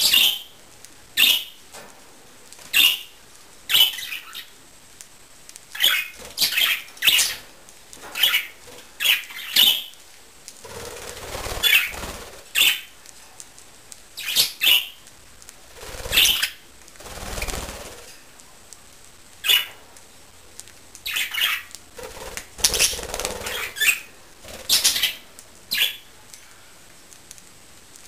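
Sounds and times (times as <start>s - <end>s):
birds' wings flapping: 10.6s - 12.8s, 15.4s - 18.3s, 21.9s - 25.3s.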